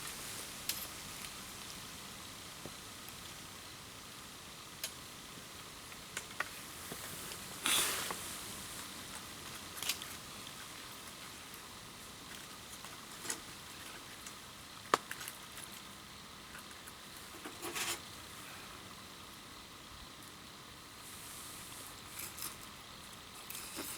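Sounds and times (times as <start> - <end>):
fire crackles and pops: 0.0 - 16.2
campfire hissing: 0.0 - 23.9.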